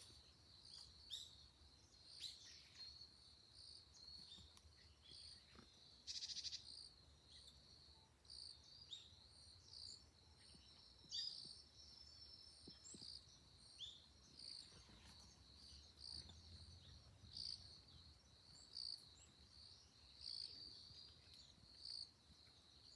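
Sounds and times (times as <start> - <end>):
songbirds chirping: 0.0 - 22.9
buzzy bird trill: 6.1 - 6.6.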